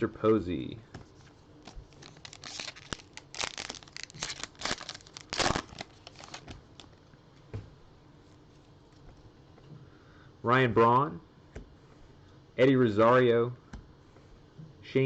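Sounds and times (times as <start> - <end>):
foil wrapper crinkling and tearing: 1.7 - 6.9.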